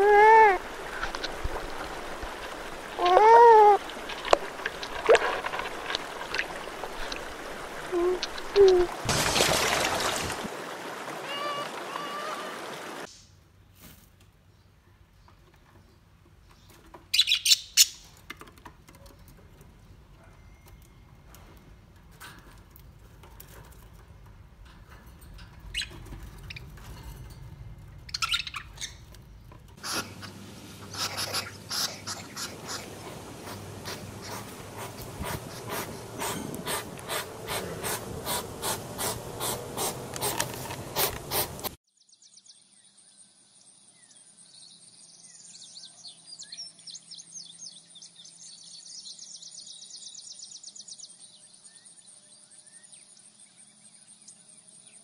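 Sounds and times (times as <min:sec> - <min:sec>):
budgerigars chirping: 0:17.2 - 0:18.0, 0:28.1 - 0:29.0, 0:29.8 - 0:41.6.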